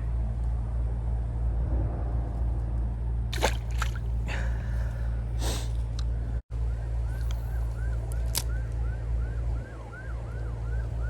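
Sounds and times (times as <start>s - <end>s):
steady low rumble: 0.0s - 9.7s
water sloshing and splashing: 3.2s - 5.0s, 7.1s - 8.6s.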